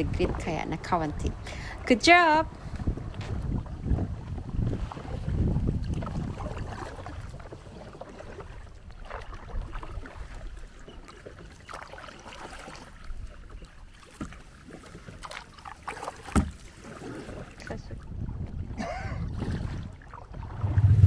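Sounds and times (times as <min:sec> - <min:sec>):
paddles splashing in water: 0:00.0 - 0:21.0
low rumble: 0:20.4 - 0:21.0.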